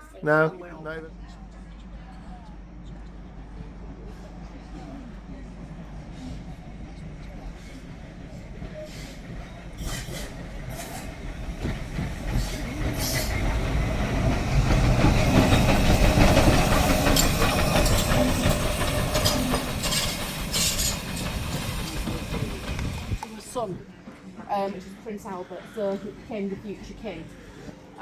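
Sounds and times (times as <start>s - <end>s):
steam train wheels clattering: 5.9s - 23.7s.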